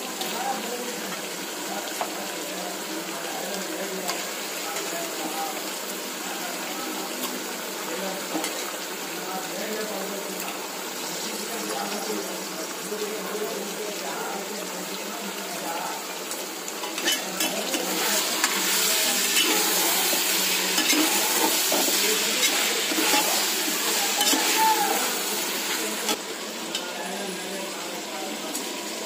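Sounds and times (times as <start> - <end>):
chicken sizzling in a pot: 0.0 - 29.0.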